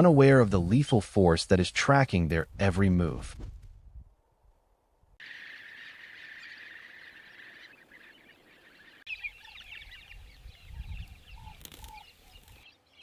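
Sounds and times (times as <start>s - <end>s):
flock of birds chirping: 5.2s - 13.0s.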